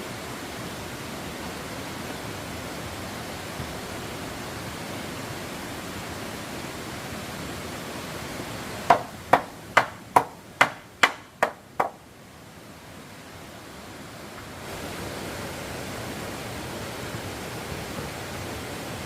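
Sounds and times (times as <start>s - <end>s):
steady rushing hiss: 0.0s - 19.0s
hammering on wood: 8.9s - 12.0s.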